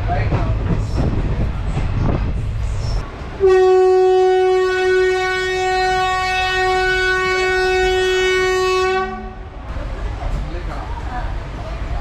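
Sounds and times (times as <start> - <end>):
train horn long blast: 3.4 - 9.5.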